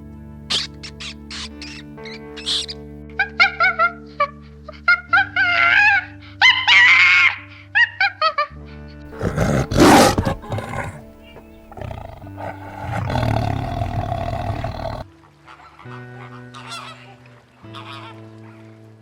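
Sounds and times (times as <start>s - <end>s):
background music: 9.0s - 19.0s
rough animal calls: 9.1s - 15.0s.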